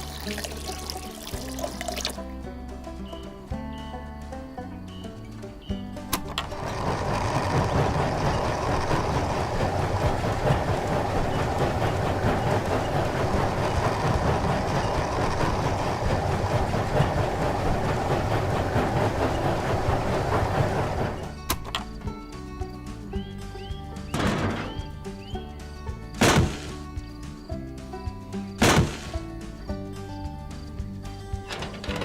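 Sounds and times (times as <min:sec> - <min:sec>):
machine rattling fast: 0:00.0 - 0:02.2, 0:06.1 - 0:22.2, 0:26.2 - 0:27.4, 0:28.6 - 0:29.3, 0:31.3 - 0:32.0.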